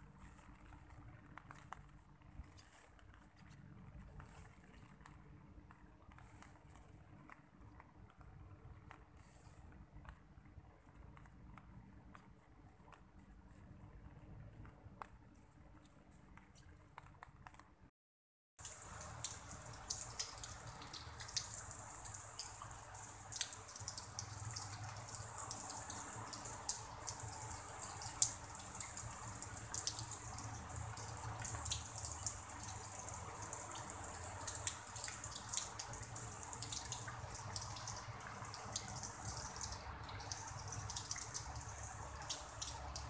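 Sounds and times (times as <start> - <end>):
rain hiss: 18.6 - 43.0
raindrops ticking: 18.6 - 43.0.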